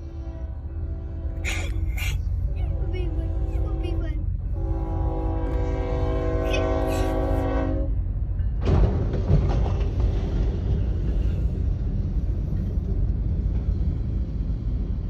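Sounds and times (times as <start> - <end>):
train rumbling: 0.0 - 15.0
train crashing into truck: 8.6 - 10.7.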